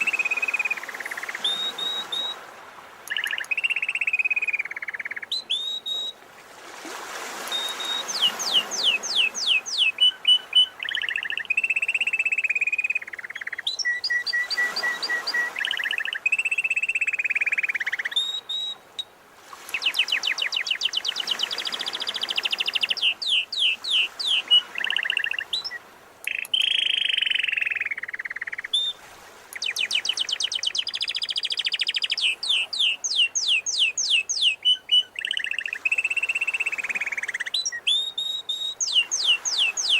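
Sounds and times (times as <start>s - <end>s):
canary singing trills: 0.0s - 2.4s, 3.1s - 6.1s, 7.5s - 18.8s, 19.7s - 39.9s
sea surf washing in: 6.2s - 10.9s.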